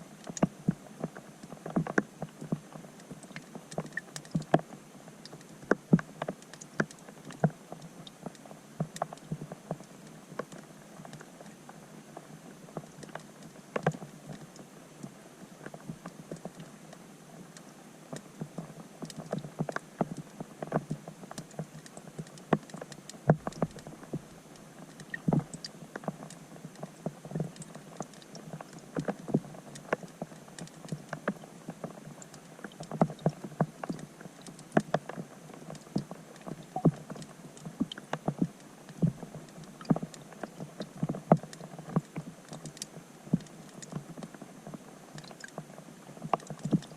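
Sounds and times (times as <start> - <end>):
raindrops plinking underwater: 0.1 - 46.9.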